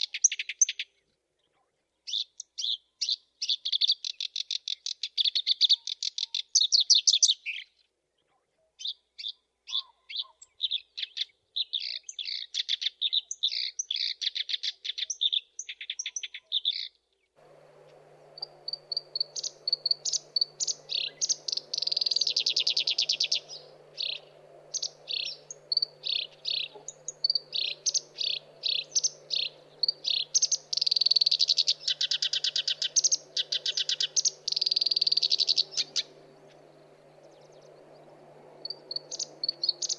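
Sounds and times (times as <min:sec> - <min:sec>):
faint hiss: 0:17.4 - 0:39.9
reed warbler singing: 0:17.4 - 0:39.9
steady low hum: 0:17.4 - 0:39.9.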